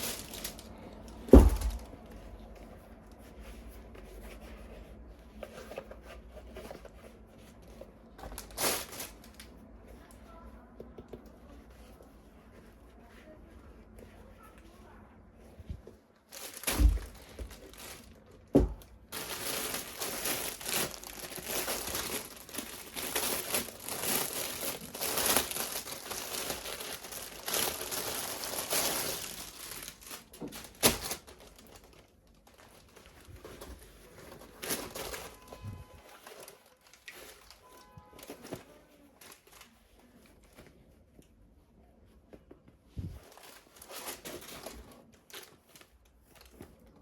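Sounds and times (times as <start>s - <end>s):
plastic packaging crinkling: 0.0s - 2.4s, 6.6s - 9.6s, 16.2s - 39.8s, 43.2s - 46.9s.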